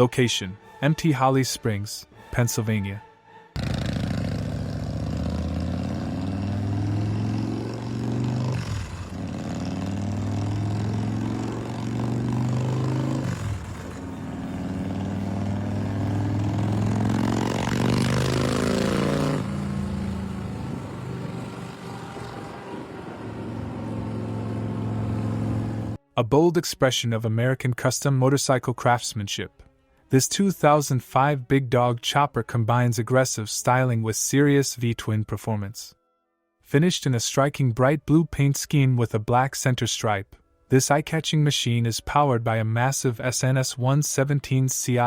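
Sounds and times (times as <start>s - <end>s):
motorcycle engine revving: 3.6s - 26.0s.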